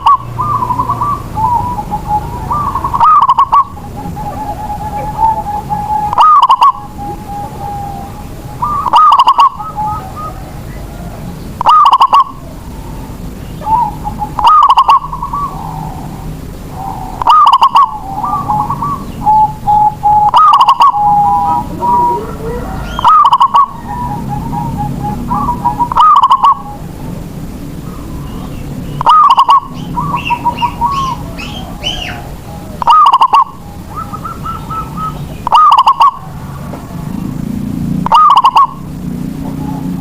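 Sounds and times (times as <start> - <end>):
dove cooing: 0.0 - 27.0, 27.8 - 40.0.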